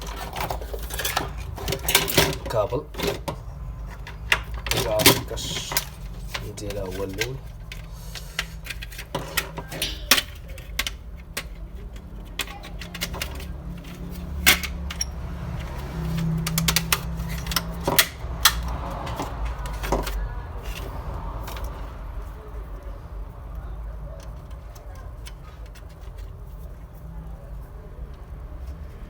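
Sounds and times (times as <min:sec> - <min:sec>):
cable connectors clicking: 0:00.0 - 0:21.9.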